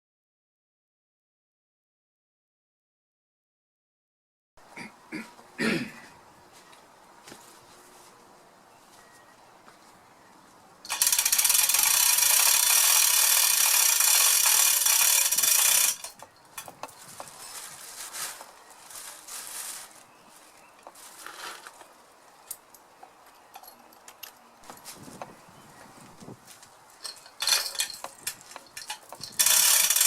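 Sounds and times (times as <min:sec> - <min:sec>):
chain block ratcheting clatter: 0:10.8 - 0:17.0, 0:27.0 - 0:30.0
scattered clicks and knocks: 0:10.8 - 0:17.4, 0:27.0 - 0:30.0.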